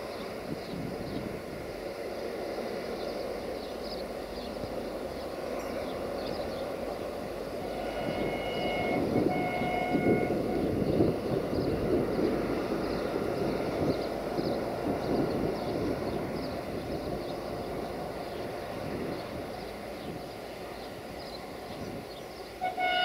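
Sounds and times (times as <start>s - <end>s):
diesel train engine and wheels: 0.0s - 23.0s
train horn blasts: 7.5s - 11.2s, 22.6s - 23.0s.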